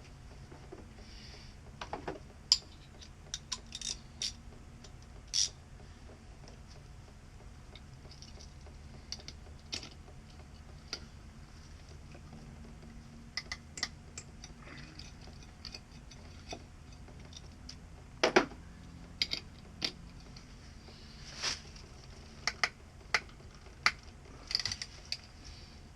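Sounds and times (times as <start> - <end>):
hand tools clicking and tapping: 1.8 - 6.6, 7.7 - 11.1, 11.9 - 20.5, 22.0 - 25.3.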